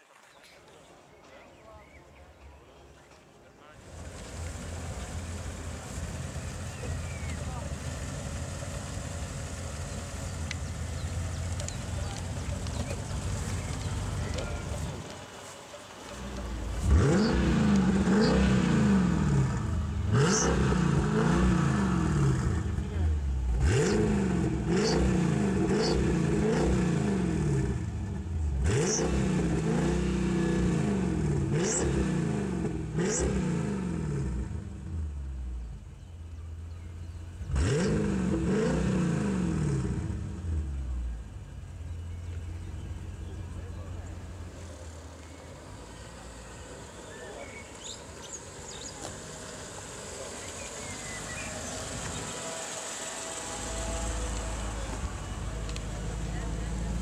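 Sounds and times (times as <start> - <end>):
car engine revving hard: 16.6 - 35.2, 37.4 - 40.8, 48.7 - 57.0.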